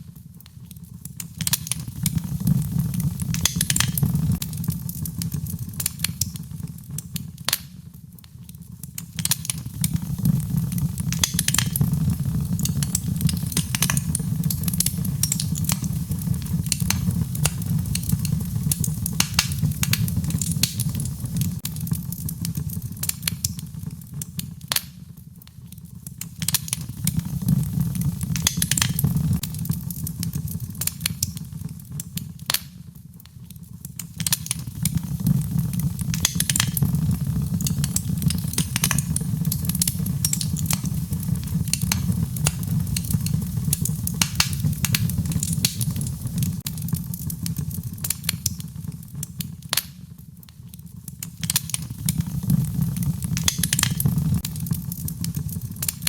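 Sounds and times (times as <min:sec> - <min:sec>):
wood fire crackling and popping: 0:00.0 - 0:56.0
low steady rumble: 0:34.7 - 0:46.9.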